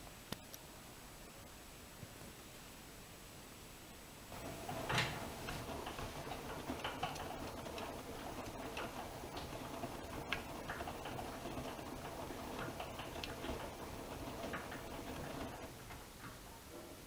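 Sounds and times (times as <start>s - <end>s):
washing machine drum turning: 4.3s - 15.9s.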